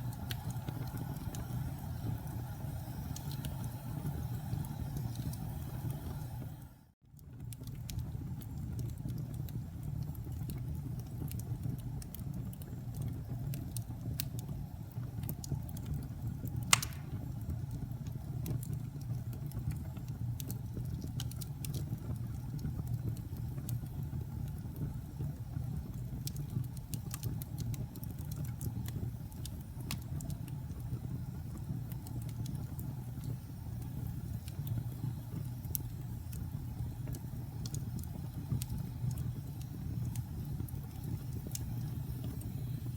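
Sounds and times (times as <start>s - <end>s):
low fire rumble: 0.0s - 42.9s
wood fire crackling: 0.0s - 42.9s
loud pop: 16.7s - 17.2s.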